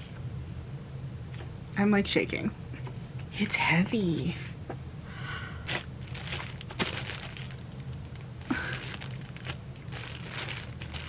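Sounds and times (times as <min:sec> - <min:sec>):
packaging crinkling and rustling: 0:05.7 - 0:11.0.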